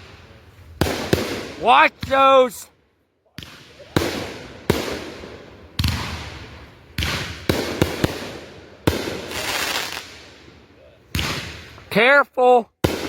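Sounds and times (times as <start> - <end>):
fireworks bangs: 0.0 - 2.7, 3.3 - 12.0, 12.8 - 13.0
fireworks hissing crackle: 3.5 - 11.9.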